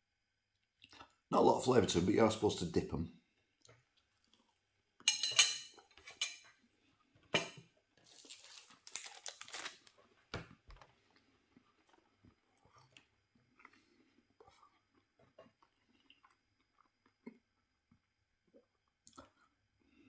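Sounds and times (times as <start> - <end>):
quiet chewing: 0.5 - 1.2, 3.4 - 4.8, 7.9 - 20.0
crispy food crunching: 3.6 - 4.8, 7.9 - 19.7.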